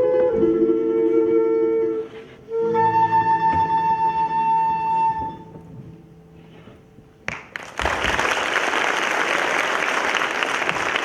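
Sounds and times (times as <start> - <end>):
audience applauding: 7.3 - 11.0.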